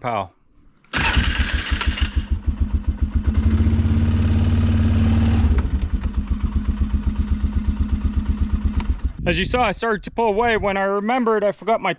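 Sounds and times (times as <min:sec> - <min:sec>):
small vehicle engine idling: 0:01.0 - 0:04.8, 0:05.5 - 0:09.2.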